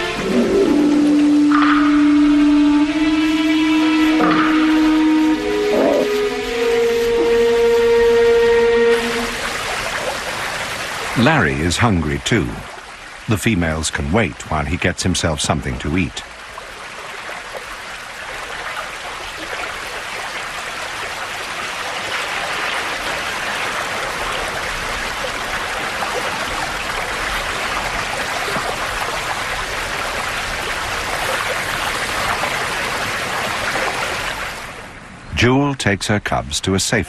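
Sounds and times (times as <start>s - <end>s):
river water over rocks: 8.9s - 35.2s.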